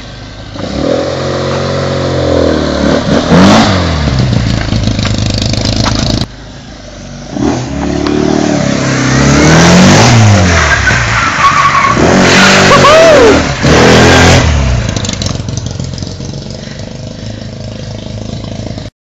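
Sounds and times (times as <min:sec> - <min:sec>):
car engine revving hard: 0:00.6 - 0:04.4, 0:07.3 - 0:15.6
tyres squealing: 0:10.4 - 0:13.5.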